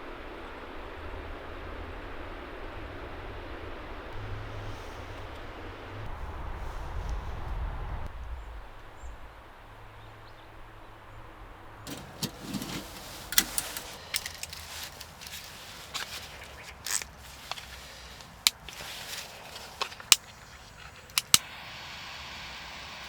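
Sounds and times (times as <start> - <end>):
sharp irregular clicks and knocks: 11.9 - 21.4
faint steady hiss: 11.9 - 23.0.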